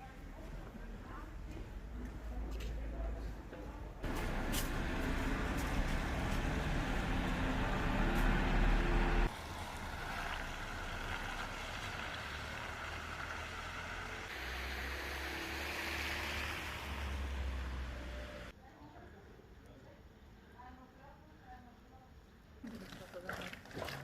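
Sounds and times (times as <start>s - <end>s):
faint engine tones: 0.0s - 18.6s
low vehicle rumble: 4.0s - 18.5s.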